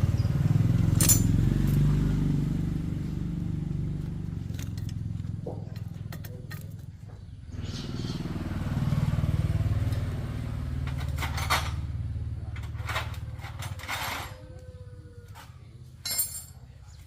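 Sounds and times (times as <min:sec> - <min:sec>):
motorcycle engine running: 0:00.0 - 0:14.2
metallic clanks: 0:00.9 - 0:01.8, 0:16.0 - 0:16.6.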